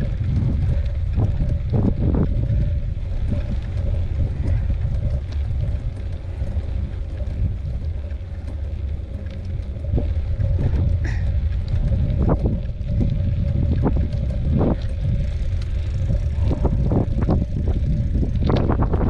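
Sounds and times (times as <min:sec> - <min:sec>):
faint steady hum: 0:00.0 - 0:19.0
light clicks and rattles: 0:00.0 - 0:19.0
wind buffeting microphone: 0:00.0 - 0:19.0.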